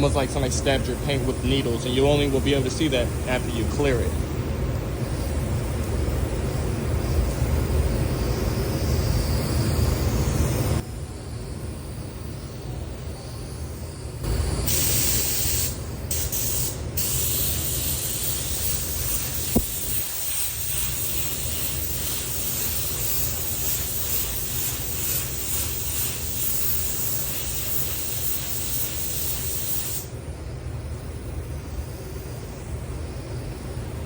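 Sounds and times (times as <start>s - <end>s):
steady low hum: 0.0s - 34.0s
paint spray gun hissing: 14.3s - 30.1s.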